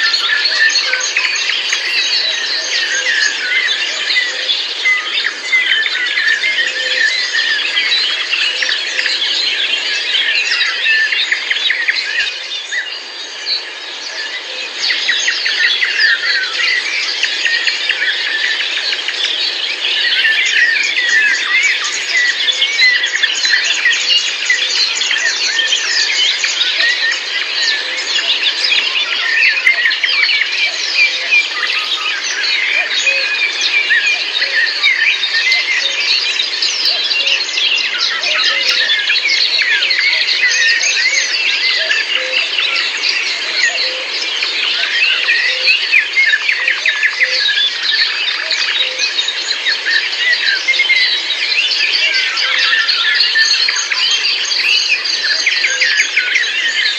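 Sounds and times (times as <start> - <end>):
many birds chirping and singing: 0.0 - 56.9.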